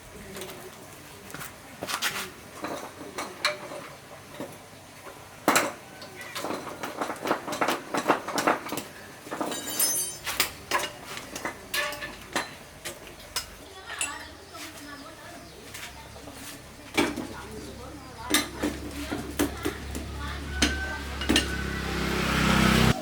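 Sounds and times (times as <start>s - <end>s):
metal tools clinking: 9.3s - 14.3s
ringing metallic sound: 9.5s - 10.3s.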